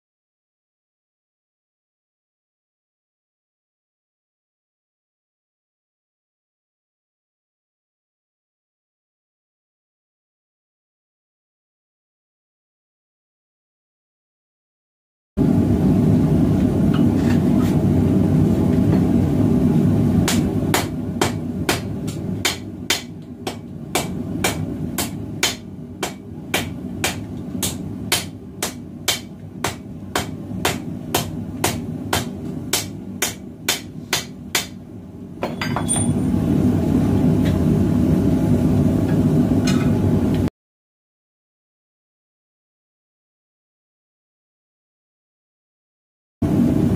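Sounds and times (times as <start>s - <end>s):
forge low rumble: 15.4s - 21.2s
hammer striking hot steel: 20.2s - 34.8s.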